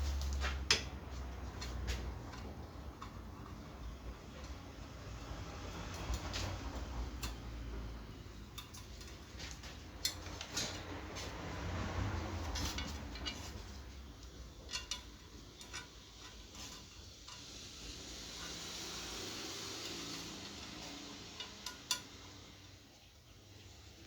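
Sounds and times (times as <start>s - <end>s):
metal tools clinking: 12.4s - 17.5s.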